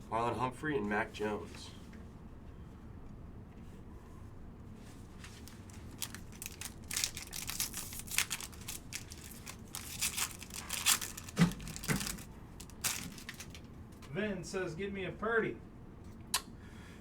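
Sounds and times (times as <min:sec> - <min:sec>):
wrapper tearing and crinkling: 0:05.3 - 0:13.7.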